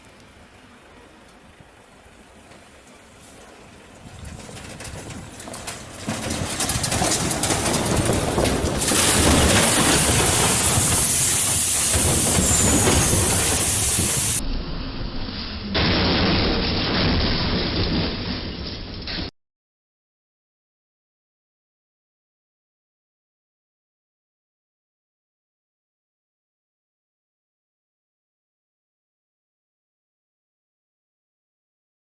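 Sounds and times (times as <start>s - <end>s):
train passing close by: 0.0s - 14.4s.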